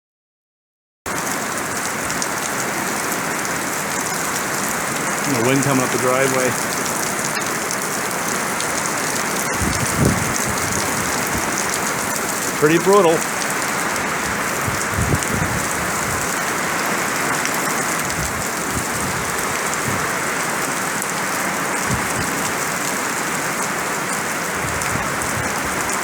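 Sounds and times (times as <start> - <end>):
heavy rain pouring: 1.1 - 26.0
wind gusts buffeting microphone: 3.7 - 20.3, 21.4 - 23.2, 24.4 - 26.0.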